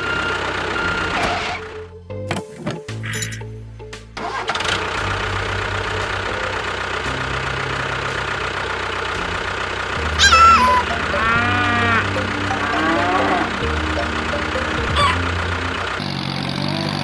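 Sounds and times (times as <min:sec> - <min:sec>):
engine starting and running: 0:00.0 - 0:03.5, 0:04.2 - 0:17.0.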